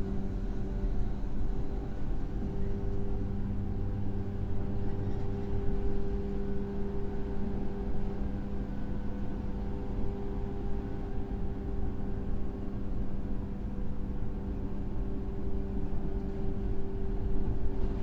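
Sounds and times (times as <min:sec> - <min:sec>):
train motor and gear hum: 0:00.0 - 0:03.4.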